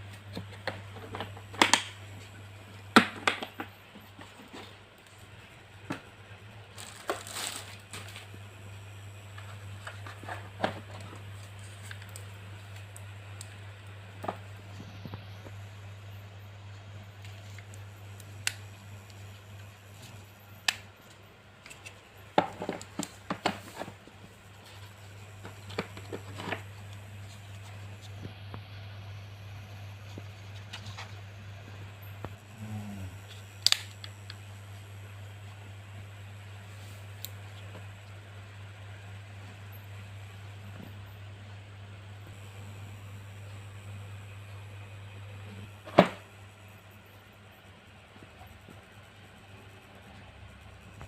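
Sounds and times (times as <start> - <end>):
steady low hum: 0.0 - 51.0
packaging crinkling and tearing: 6.7 - 8.3.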